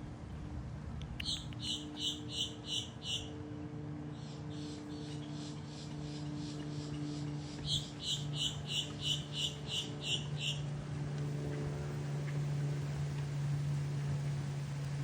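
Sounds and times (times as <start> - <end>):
steady low hum: 0.0 - 15.0
bird calling high notes: 1.2 - 3.4, 7.6 - 10.7.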